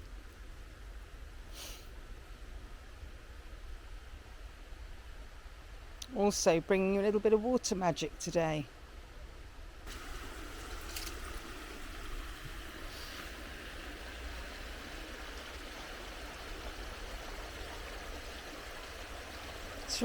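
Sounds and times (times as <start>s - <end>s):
stream rippling over stones: 9.9s - 20.0s.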